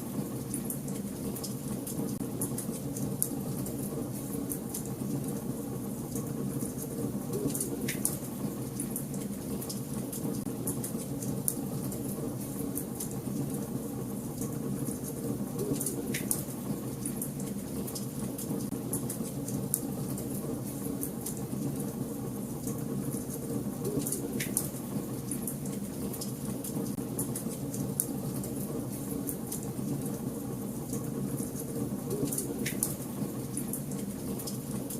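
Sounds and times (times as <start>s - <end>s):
wood fire crackling: 0.2s - 34.9s.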